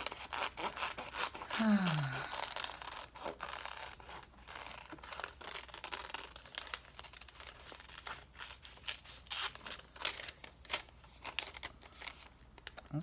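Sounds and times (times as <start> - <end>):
scissors cutting paper: 0.0 - 10.3
paper rustling and crinkling: 2.4 - 13.0.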